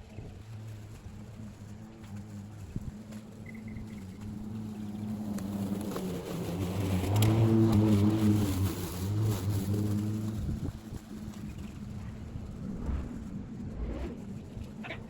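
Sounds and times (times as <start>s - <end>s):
lawn mower cutting grass: 2.4s - 11.8s.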